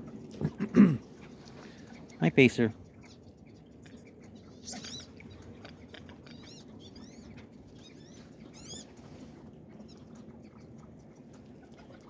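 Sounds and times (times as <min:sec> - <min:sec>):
ducks whistling calls: 0:02.9 - 0:12.0.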